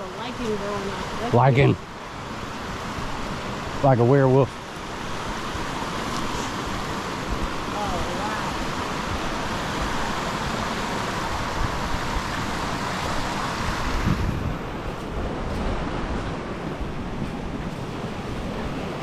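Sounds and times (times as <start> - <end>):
rushing river water: 0.0 - 19.0
wind buffeting microphone: 0.0 - 19.0.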